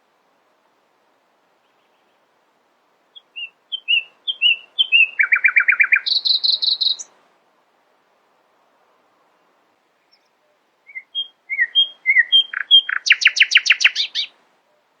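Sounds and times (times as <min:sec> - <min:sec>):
songbird whistles and trills: 0:03.2 - 0:07.1, 0:10.1 - 0:14.9.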